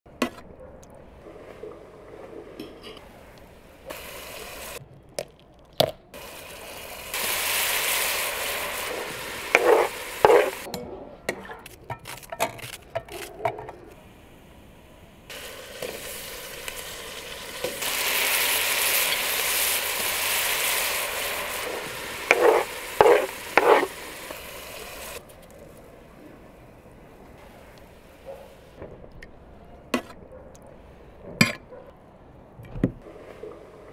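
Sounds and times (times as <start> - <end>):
food sizzling in a pan: 3.9 - 4.8, 6.2 - 10.7, 15.3 - 25.2.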